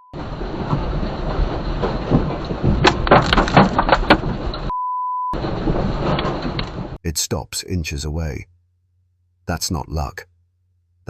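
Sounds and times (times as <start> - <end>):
censor bleep: 0.0 - 0.2, 4.7 - 5.4
rumbling clattering with sharp knocks: 0.1 - 4.7, 5.4 - 7.0.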